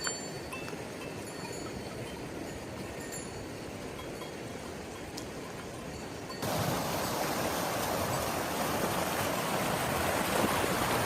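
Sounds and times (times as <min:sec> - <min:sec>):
steady rainfall: 0:00.0 - 0:11.0.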